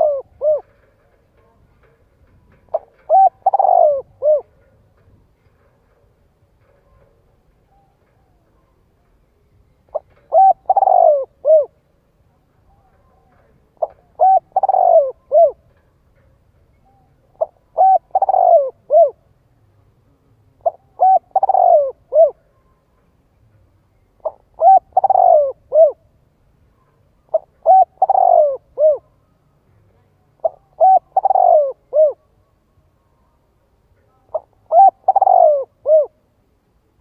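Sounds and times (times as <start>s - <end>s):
dove cooing: 0.0s - 5.0s, 9.9s - 11.9s, 12.8s - 15.9s, 16.8s - 19.3s, 20.6s - 22.7s, 24.2s - 26.1s, 27.2s - 29.2s, 30.4s - 32.4s, 34.2s - 36.3s.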